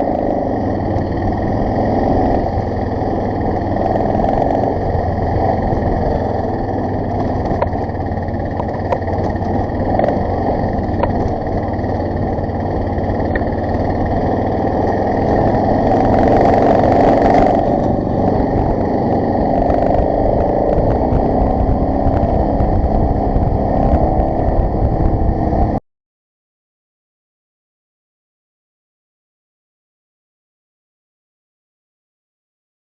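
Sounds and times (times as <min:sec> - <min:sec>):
motorcycle engine running: 0:00.0 - 0:25.8
sharp clicks and knocks: 0:07.0 - 0:12.0.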